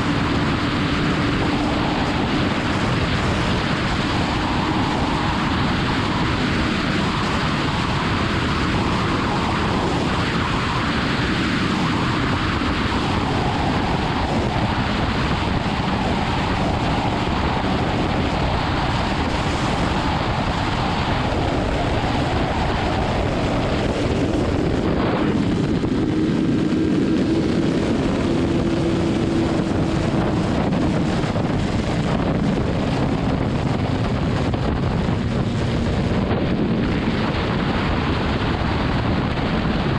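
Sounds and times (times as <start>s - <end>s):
wind rush over microphone: 0.0s - 39.9s
motorcycle engine running: 23.0s - 32.6s.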